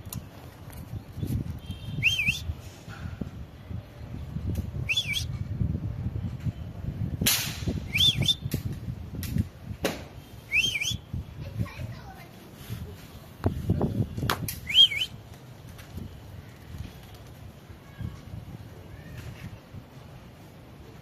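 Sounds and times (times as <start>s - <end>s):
parrot whistling: 4.9s - 5.3s, 10.5s - 11.0s.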